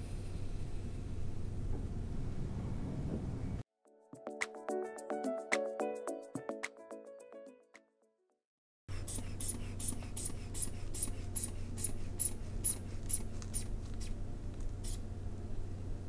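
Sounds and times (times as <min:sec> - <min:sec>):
hand bulb hissing squeezes: 0:08.9 - 0:15.1
steady low hum: 0:08.9 - 0:16.0.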